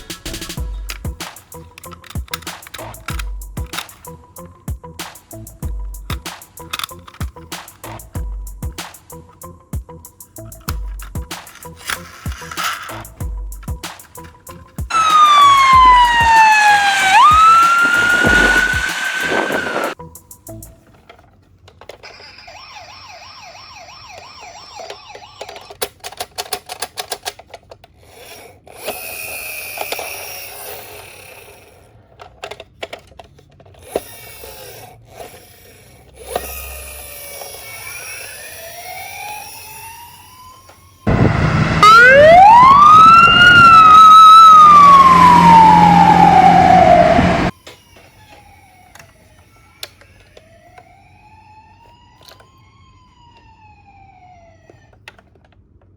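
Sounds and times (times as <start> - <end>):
quick clicks: 0.0 - 4.4, 5.0 - 8.2, 8.8 - 20.8
toy siren wailing: 14.9 - 20.0, 22.0 - 25.9, 33.8 - 55.1.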